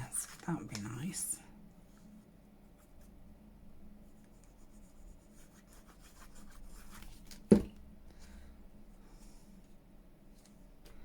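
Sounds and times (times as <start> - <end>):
pen scratching on paper: 4.2 - 7.1.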